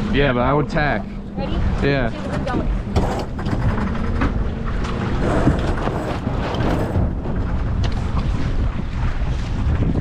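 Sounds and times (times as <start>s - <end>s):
wind buffeting microphone: 0.0s - 10.0s
boat gear knocking and rustling: 2.2s - 8.8s.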